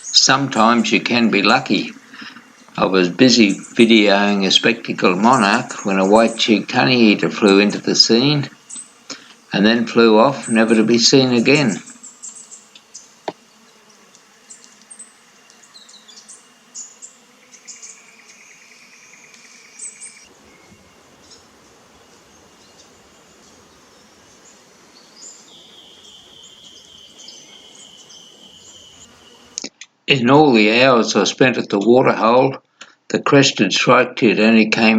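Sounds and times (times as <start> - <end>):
pulsed insect trill: 0.0 - 29.6
steady high insect drone: 0.0 - 29.6
insect sounds: 0.0 - 29.7
high bird chirps: 14.5 - 29.6.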